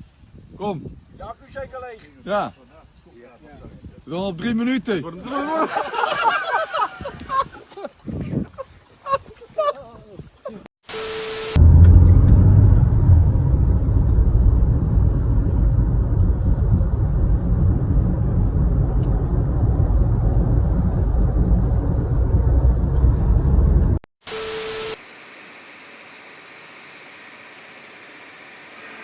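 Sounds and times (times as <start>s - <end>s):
short hiss with steady tone: 10.9s - 12.0s
loud low rumbling: 11.6s - 24.1s.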